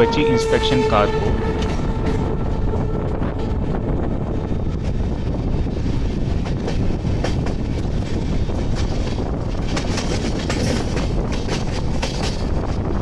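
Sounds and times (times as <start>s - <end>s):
train wheels rumbling on rail: 0.0s - 13.0s
wheels clacking over rail joints: 6.0s - 12.9s.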